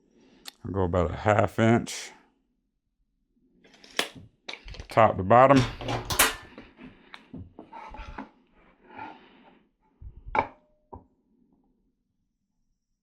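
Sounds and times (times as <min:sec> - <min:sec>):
scraping and rubbing on wood: 0:06.6 - 0:09.6.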